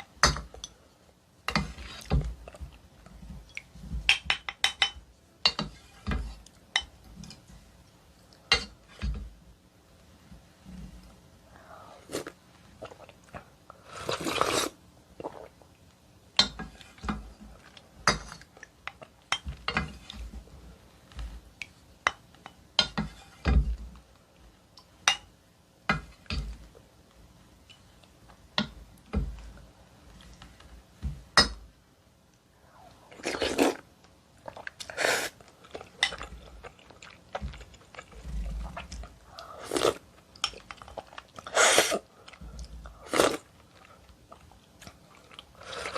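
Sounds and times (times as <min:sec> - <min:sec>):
chewing and wet mouth sounds: 0:34.4 - 0:45.9.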